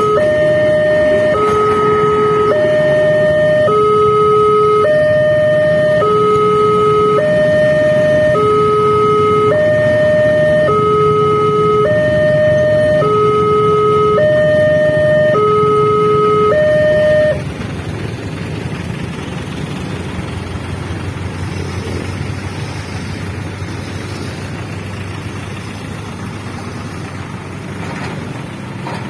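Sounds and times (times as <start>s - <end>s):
level crossing alarm two tones: 0.0s - 17.4s
rumble of engines and traffic: 0.0s - 29.0s.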